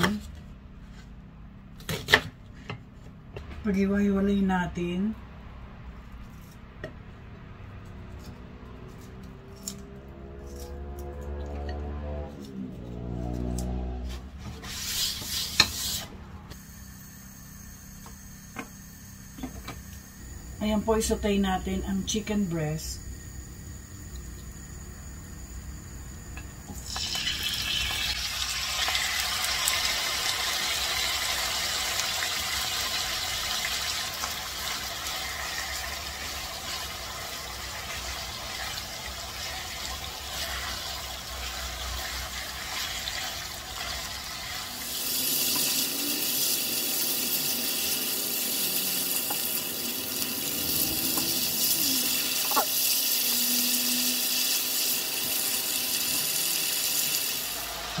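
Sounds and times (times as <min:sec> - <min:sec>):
chicken sizzling in hot oil: 0:26.8 - 0:58.0.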